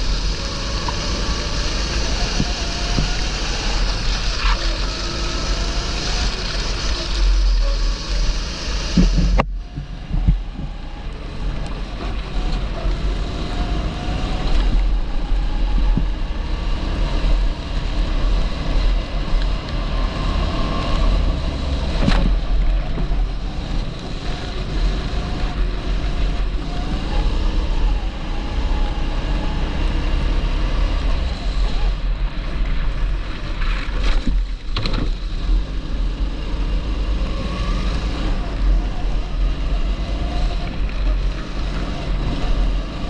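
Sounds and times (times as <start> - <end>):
wind buffeting microphone: 0.0 - 35.8
kart engine revving: 0.0 - 43.0.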